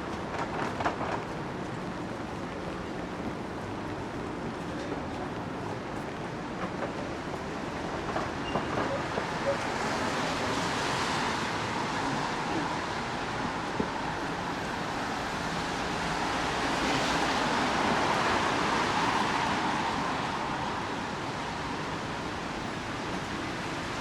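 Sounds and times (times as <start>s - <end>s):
wet city street noise: 0.0s - 24.0s
vehicle tyres hissing on wet road: 9.2s - 24.0s.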